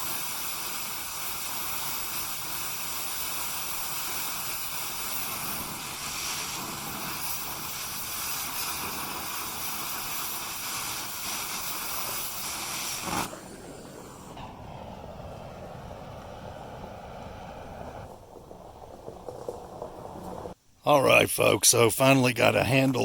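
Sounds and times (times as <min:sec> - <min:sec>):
gas torch flame hissing: 0:00.0 - 0:18.7.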